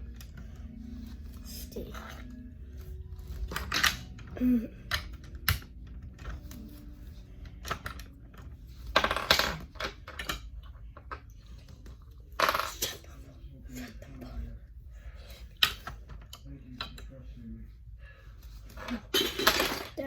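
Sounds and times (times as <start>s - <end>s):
rattle of plastic pieces: 3.2s - 6.6s, 18.6s - 20.0s.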